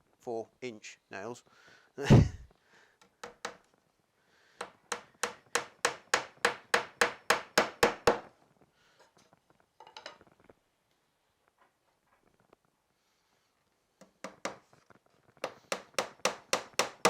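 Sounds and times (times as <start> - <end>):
hammer tapping nails into wood: 3.0 - 3.7, 4.6 - 8.3, 14.0 - 14.6, 15.4 - 17.0.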